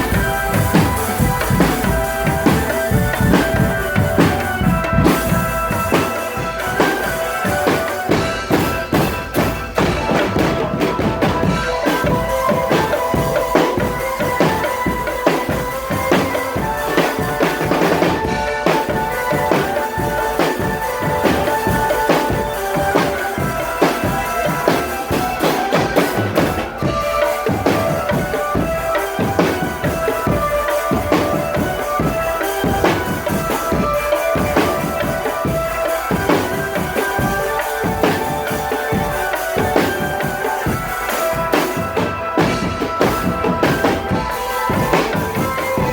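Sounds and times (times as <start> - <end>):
held-note melody: 0.0 - 45.9
snare and bass drums: 0.0 - 45.9.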